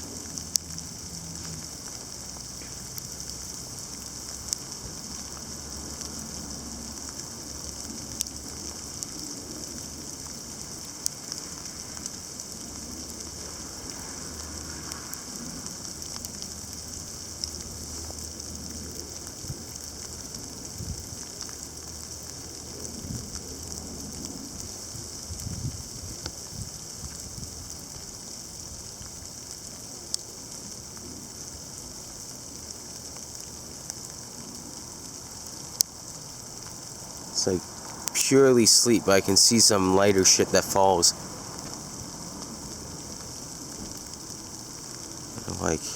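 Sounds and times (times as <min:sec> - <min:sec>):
ice pellets ticking on surfaces: 0:00.1 - 0:45.9
sleet hissing: 0:08.7 - 0:18.1, 0:36.0 - 0:45.9.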